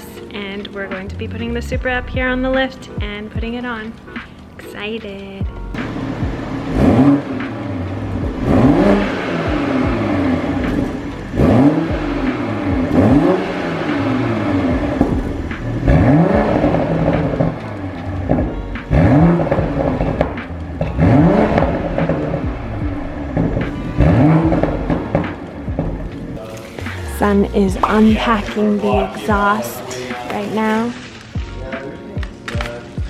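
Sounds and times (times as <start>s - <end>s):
car engine revving: 5.5s - 31.6s.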